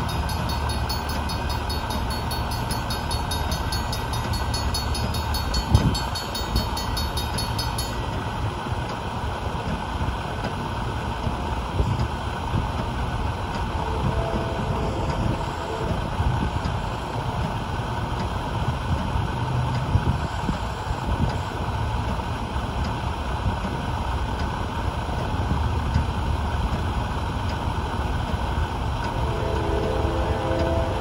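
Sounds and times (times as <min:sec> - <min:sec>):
freight train rumble: 0:00.0 - 0:31.0
faint train horn chord: 0:13.7 - 0:16.5, 0:29.1 - 0:31.0.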